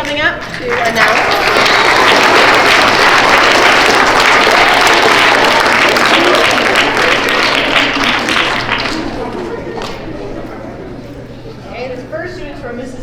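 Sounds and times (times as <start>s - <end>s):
children applauding in a hall: 0.4s - 10.0s.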